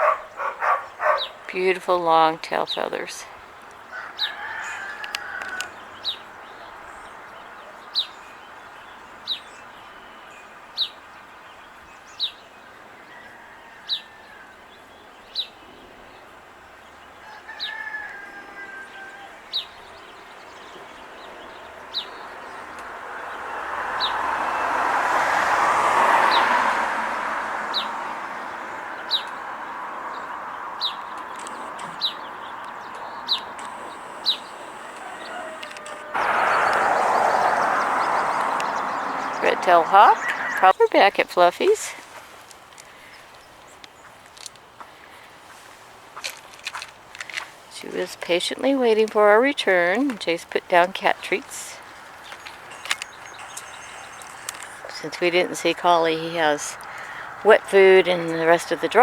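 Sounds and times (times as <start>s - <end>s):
broad rushing noise: 33.2s - 40.8s.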